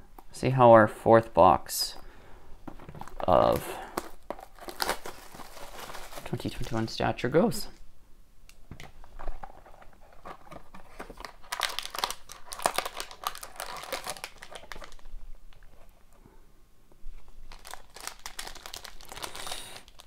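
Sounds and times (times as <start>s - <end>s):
wrapper crinkling and tearing: 3.0s - 7.0s, 10.2s - 15.7s, 17.5s - 20.0s.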